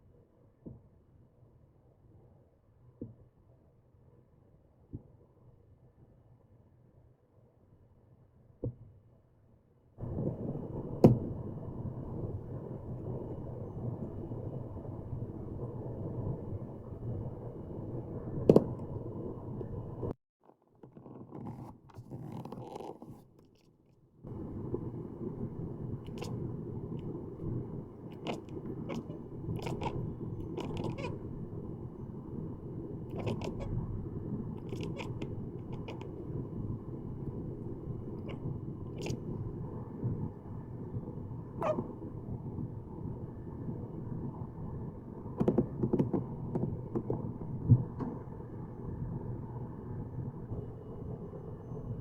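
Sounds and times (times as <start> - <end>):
low background hum: 10.0 - 20.2, 24.3 - 52.0
cat chattering clicks: 28.1 - 31.2, 33.1 - 33.7, 34.6 - 36.2.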